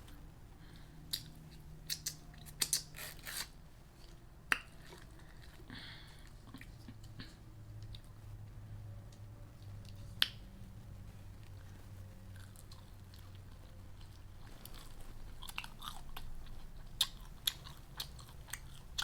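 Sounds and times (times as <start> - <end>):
person chewing food: 11.4 - 19.0.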